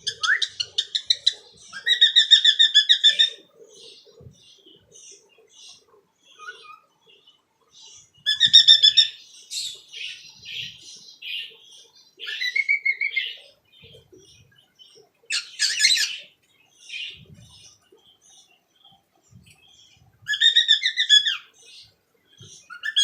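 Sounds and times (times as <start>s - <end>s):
cockatiel chirping and warbling: 0.0s - 3.4s, 8.2s - 9.2s, 12.2s - 13.4s, 15.3s - 16.2s, 20.3s - 21.5s, 22.7s - 23.0s.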